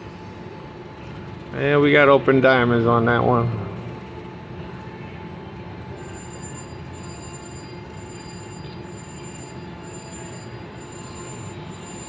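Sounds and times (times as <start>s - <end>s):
din of slot machines: 0.4s - 12.0s
high electronic slot machine tones: 6.0s - 12.0s.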